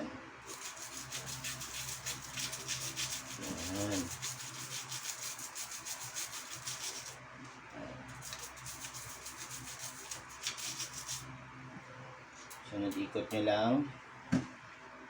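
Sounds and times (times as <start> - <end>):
toothbrush scrubbing bicycle chain: 0.4 - 7.2, 8.1 - 11.3.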